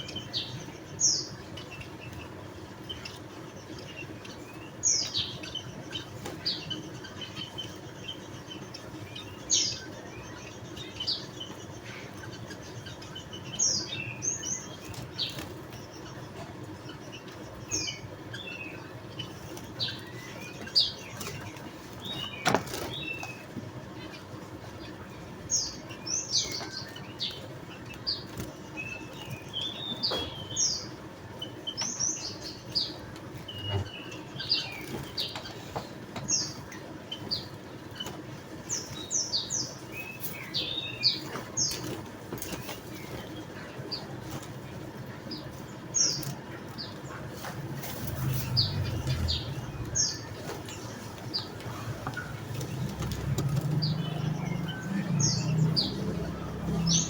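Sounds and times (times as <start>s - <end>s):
birds chirping: 0.0s - 57.0s
steady background noise: 0.0s - 57.0s.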